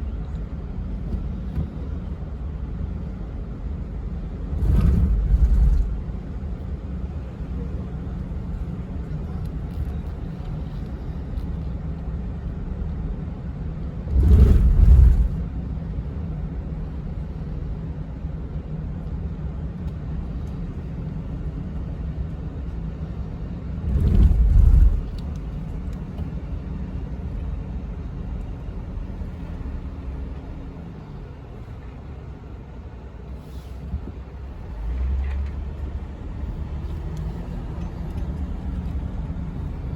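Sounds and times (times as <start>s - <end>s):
car road and engine rumble: 0.0s - 39.9s
low engine surge: 4.2s - 7.8s, 13.8s - 15.9s, 22.3s - 27.4s.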